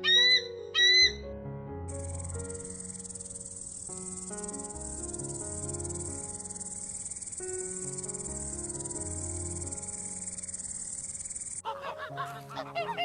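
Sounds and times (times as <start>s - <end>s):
soft background music: 0.0s - 13.0s
insects chirring: 1.9s - 11.7s.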